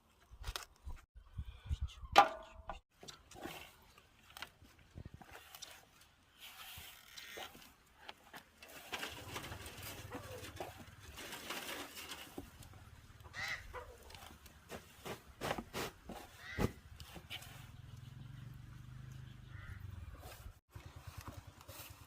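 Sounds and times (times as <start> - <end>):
birds calling: 12.8 - 14.4, 16.1 - 20.6.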